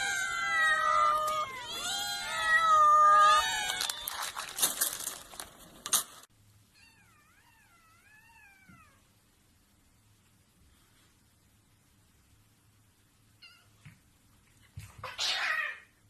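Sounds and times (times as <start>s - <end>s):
cat meowing: 0.0s - 4.4s.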